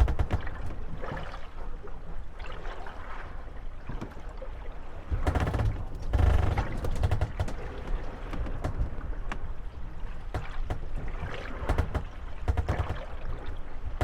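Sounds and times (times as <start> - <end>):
wooden boats knocking and creaking: 0.0 - 1.6, 3.8 - 14.0
water sloshing: 0.0 - 14.0.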